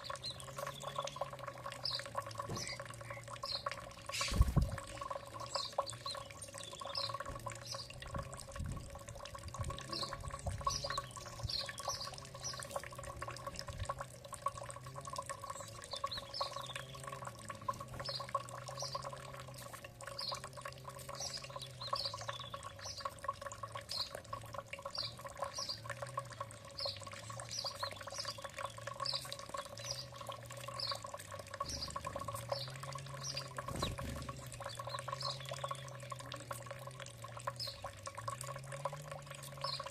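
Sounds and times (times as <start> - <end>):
bird chirping: 0.0 - 8.0, 9.9 - 12.8, 15.4 - 19.5, 21.1 - 23.2, 26.7 - 36.1, 39.6 - 39.9.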